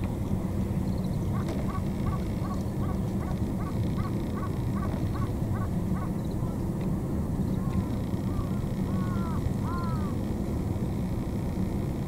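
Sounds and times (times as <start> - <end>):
steady low rumble: 0.0 - 12.0
bird calling rapid notes: 8.3 - 10.2.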